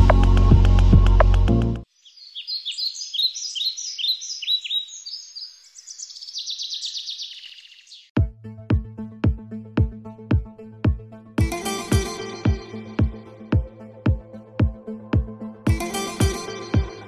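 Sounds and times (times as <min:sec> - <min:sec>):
songbird singing: 0:01.8 - 0:08.2.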